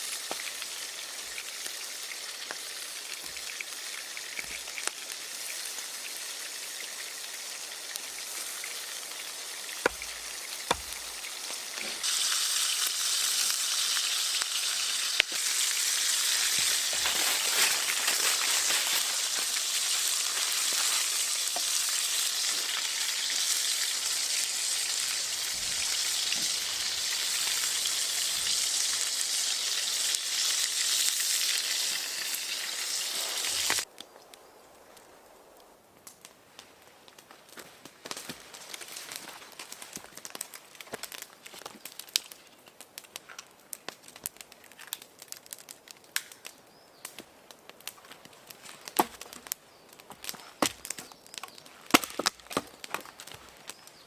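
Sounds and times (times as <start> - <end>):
food sizzling in a pan: 0.0 - 33.9.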